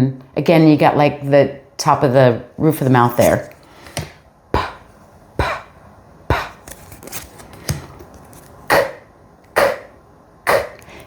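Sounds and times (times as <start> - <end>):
person making consonant sounds: 4.6 - 6.8.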